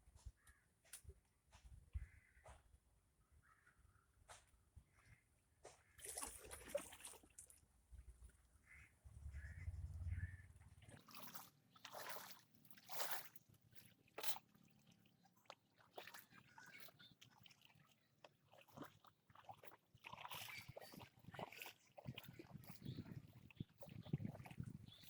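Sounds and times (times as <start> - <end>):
water sloshing and trickling: 5.7 - 25.0
low rumble: 9.0 - 10.9.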